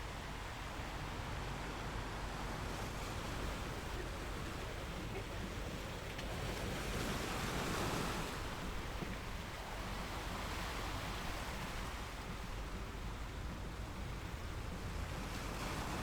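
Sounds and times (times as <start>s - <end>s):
sea waves on shore: 0.0s - 16.0s.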